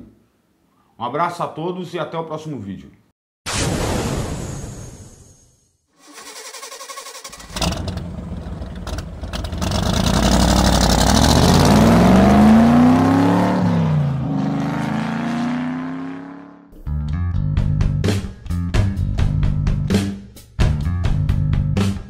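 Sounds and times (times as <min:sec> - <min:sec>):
car engine starting and revving: 0:06.0 - 0:16.6.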